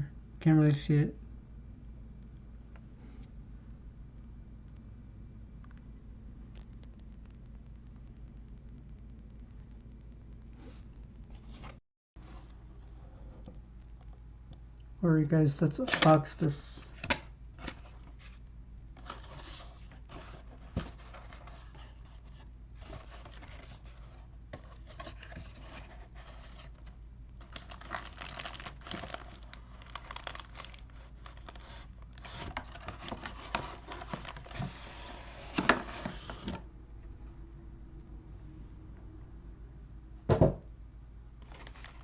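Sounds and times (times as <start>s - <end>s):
cardboard packaging rustling and tearing: 19.0s - 36.6s, 41.4s - 42.0s.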